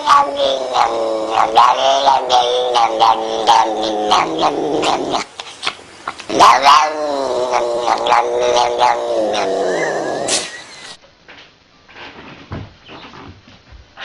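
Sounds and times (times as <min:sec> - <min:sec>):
angry cat yowling: 0:00.0 - 0:10.5.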